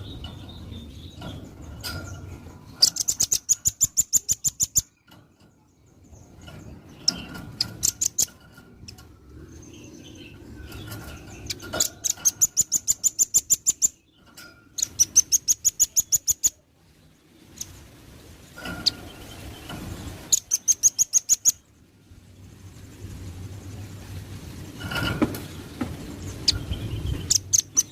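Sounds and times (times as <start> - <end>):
bird calling in sharp chirps: 14.8 - 16.6, 18.6 - 21.6.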